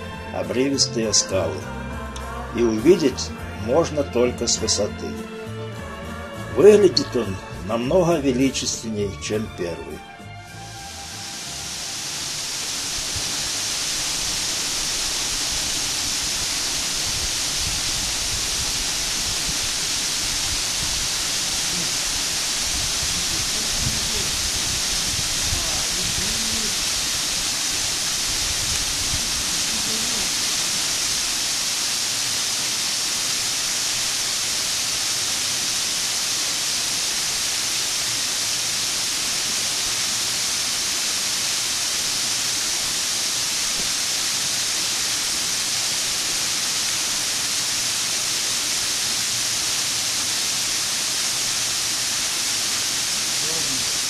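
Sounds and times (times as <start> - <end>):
waterfall: 0.0 - 54.0.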